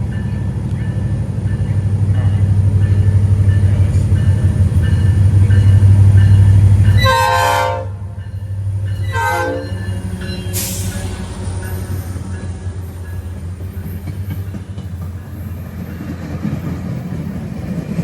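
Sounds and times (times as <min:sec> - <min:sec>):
train passing rumble: 0:00.0 - 0:18.0
train horn blasts: 0:03.7 - 0:08.3, 0:09.0 - 0:11.2.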